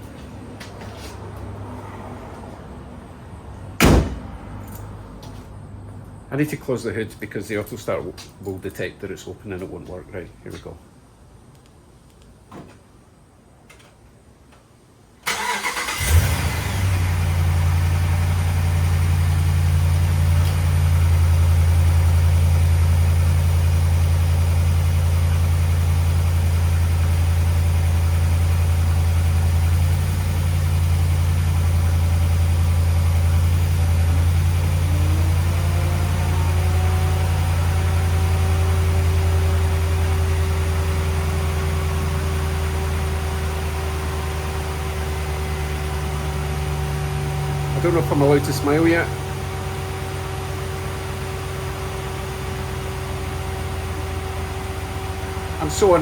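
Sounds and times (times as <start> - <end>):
engine cranking: 15.3 - 16.9
engine idling: 15.3 - 56.0.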